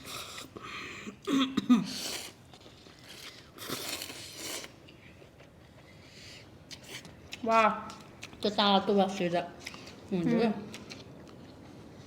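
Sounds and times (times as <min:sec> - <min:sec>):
crunchy food chewing: 0:02.1 - 0:04.8.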